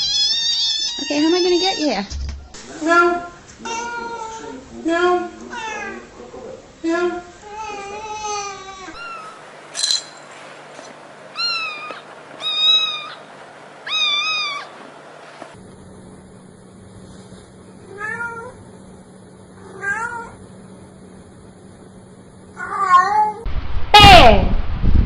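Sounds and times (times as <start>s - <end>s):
cat meowing: 0.0s - 1.9s, 7.6s - 9.4s, 11.4s - 14.8s, 17.9s - 18.6s, 19.6s - 20.4s, 22.6s - 23.4s.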